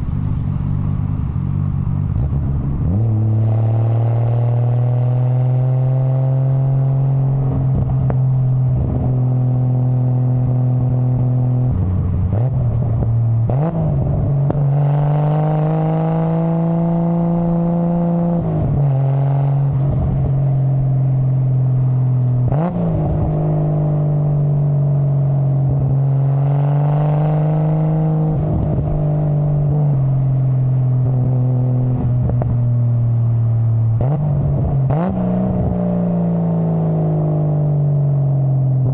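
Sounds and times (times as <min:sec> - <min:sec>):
car engine under load: 0:00.0 - 0:38.9.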